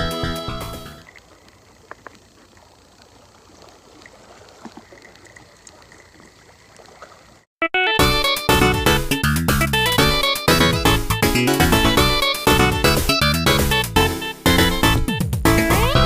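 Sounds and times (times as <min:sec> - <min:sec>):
background music: 0:00.0 - 0:01.0, 0:07.7 - 0:16.0
faint water trickling: 0:00.9 - 0:07.5.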